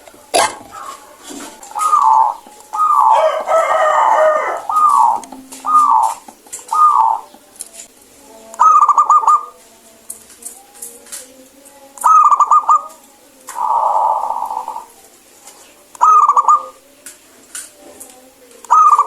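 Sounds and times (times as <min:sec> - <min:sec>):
dove cooing: 0:00.0 - 0:07.5, 0:08.6 - 0:09.6, 0:12.0 - 0:15.0, 0:15.9 - 0:17.0, 0:18.7 - 0:19.0
rapid trilled bird notes: 0:01.7 - 0:07.4.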